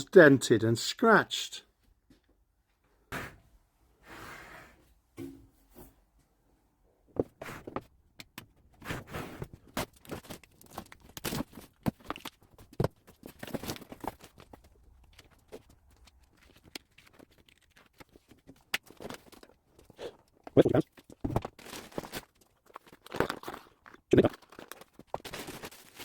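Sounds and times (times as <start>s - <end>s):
packaging being torn: 9.8s - 12.4s, 21.1s - 26.0s
thunks and knocks of parts: 21.1s - 21.6s.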